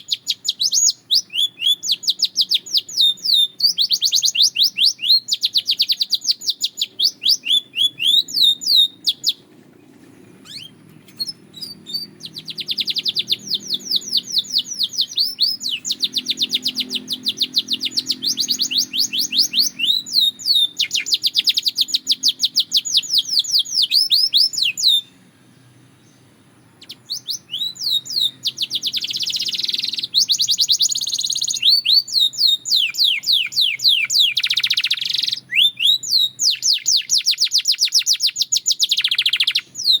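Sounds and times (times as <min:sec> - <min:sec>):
canary singing trills: 0:00.0 - 0:40.0.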